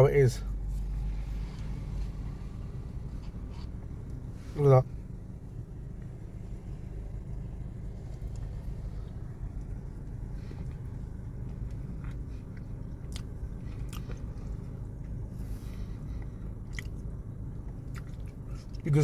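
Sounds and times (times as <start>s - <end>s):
low steady hum: 0.0s - 19.0s
person chewing food: 8.0s - 18.8s.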